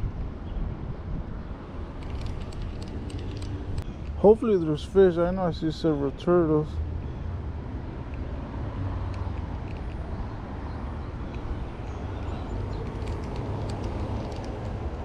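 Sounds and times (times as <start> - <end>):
cars passing by: 0.7 - 15.0.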